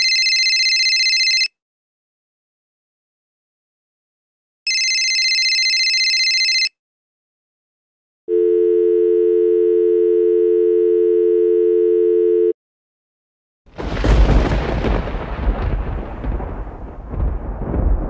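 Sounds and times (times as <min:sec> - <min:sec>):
dial tone: 0:00.0 - 0:01.5, 0:04.7 - 0:06.7, 0:08.3 - 0:12.6
telephone ringing electronic trill: 0:00.0 - 0:01.5, 0:04.7 - 0:06.7
loud crash: 0:13.8 - 0:18.0.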